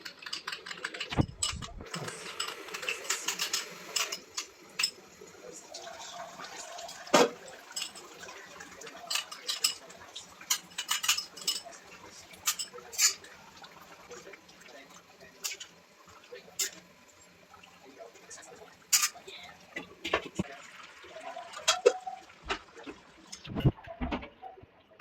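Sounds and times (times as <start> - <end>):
metal utensils clinking on cookware: 0.0 - 5.2, 5.8 - 13.4, 14.2 - 15.8, 16.5 - 16.9, 17.9 - 20.5, 21.3 - 22.6.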